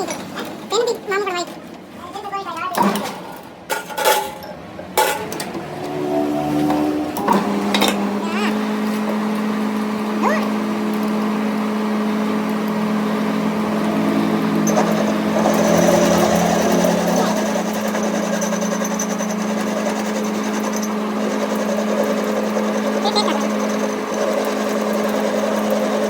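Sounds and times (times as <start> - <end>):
machine humming: 5.6 - 26.0.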